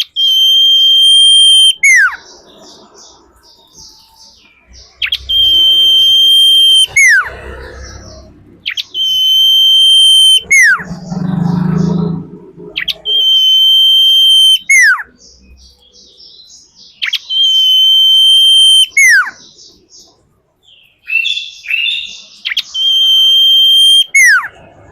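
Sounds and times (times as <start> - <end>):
bird whistling call: 0.0 - 15.2, 17.0 - 19.6, 21.1 - 24.7
low rumble: 4.8 - 9.2, 10.4 - 13.4.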